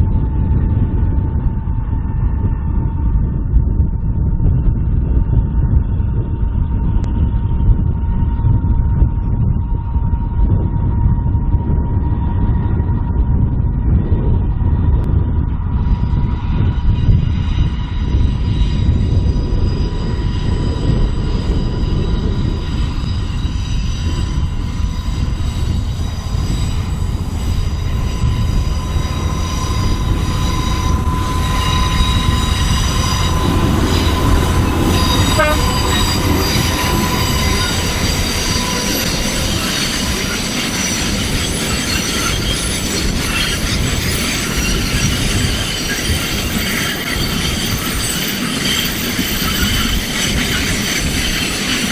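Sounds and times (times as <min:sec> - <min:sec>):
train wagons rumbling: 0:15.6 - 0:51.9
high-pitched wheel squeal: 0:15.9 - 0:51.9.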